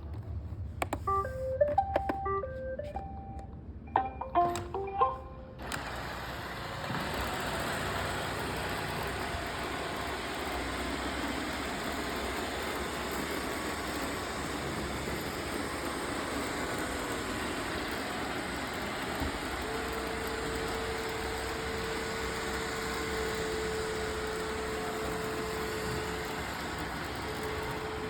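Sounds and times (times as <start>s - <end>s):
robot vacuum whirring: 5.6s - 28.0s.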